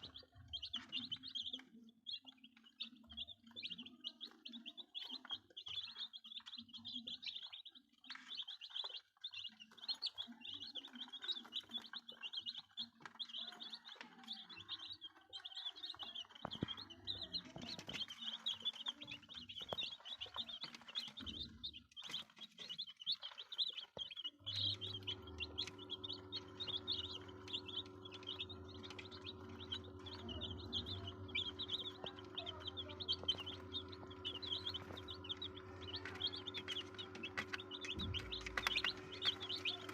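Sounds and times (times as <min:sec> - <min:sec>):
chicks peeping: 0:00.0 - 0:39.9
steady mechanical hum: 0:24.4 - 0:39.9.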